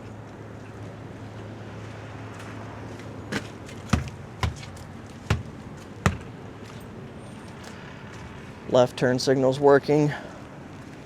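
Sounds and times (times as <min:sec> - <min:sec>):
sharp knocks: 0:03.3 - 0:06.3.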